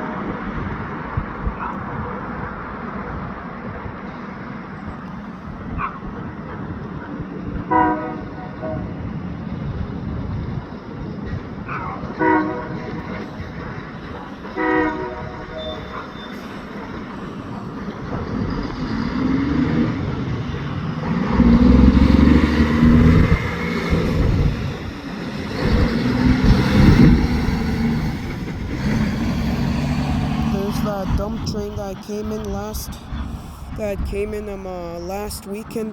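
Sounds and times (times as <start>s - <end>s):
diesel locomotive engine: 0.0s - 35.9s
locomotive horn toots: 7.7s - 9.0s, 12.2s - 13.6s, 14.4s - 17.1s.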